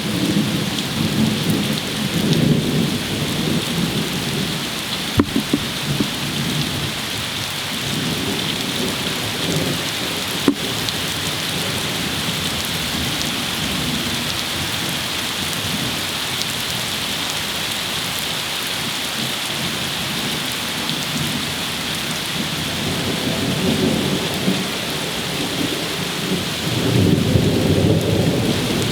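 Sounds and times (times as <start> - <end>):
heavy rain pouring: 0.0 - 28.9
sharp drips and taps: 5.2 - 6.2.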